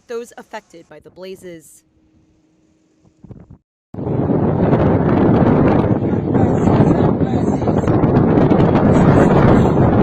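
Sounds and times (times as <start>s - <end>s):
wind rushing on microphone: 3.1s - 10.0s.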